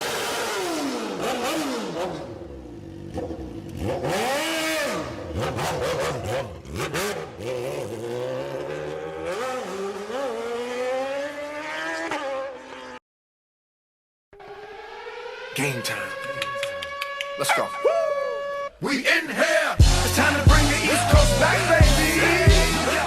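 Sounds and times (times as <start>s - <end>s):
car engine revving: 0.0s - 13.0s, 14.4s - 17.8s, 19.8s - 23.0s
engine crackles: 14.7s - 17.4s.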